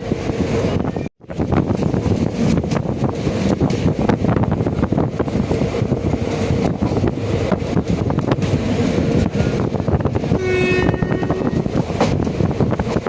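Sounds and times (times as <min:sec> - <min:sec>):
train wheels rumbling on rails: 0:00.0 - 0:13.0
train horn: 0:10.3 - 0:11.7.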